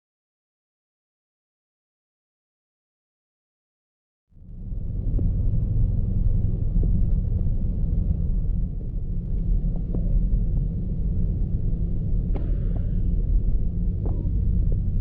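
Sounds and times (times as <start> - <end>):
gusty wind buffeting microphone: 4.4 - 15.0.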